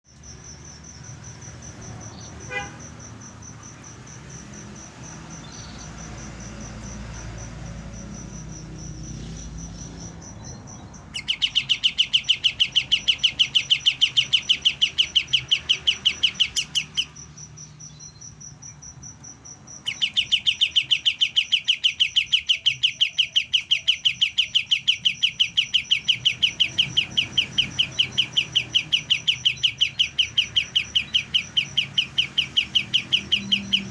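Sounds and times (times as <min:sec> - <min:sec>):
faint high pulsing trill: 0:00.1 - 0:33.9
bird calling in fast trill: 0:10.3 - 0:18.4, 0:19.8 - 0:33.9.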